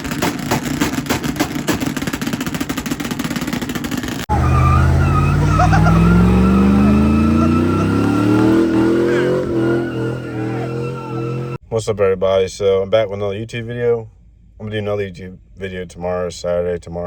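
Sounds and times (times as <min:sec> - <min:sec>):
truck engine pulsing exhaust: 0:00.0 - 0:11.6
truck engine revving: 0:00.0 - 0:11.6
thin squeals: 0:04.3 - 0:11.6.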